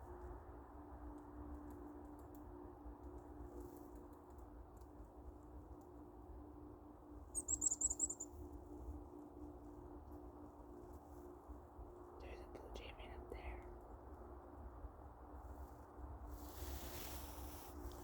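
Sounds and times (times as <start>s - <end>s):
faint low hum: 0.0s - 18.0s
chickadee chittering call: 7.4s - 8.3s.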